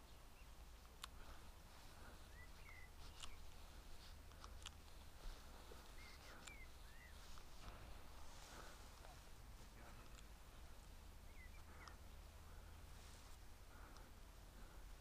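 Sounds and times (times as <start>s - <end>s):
faint low rumble: 0.0s - 15.0s
faint bird chirps: 1.2s - 3.8s, 5.2s - 10.0s, 10.9s - 12.8s
sharp ticks: 2.3s - 3.6s.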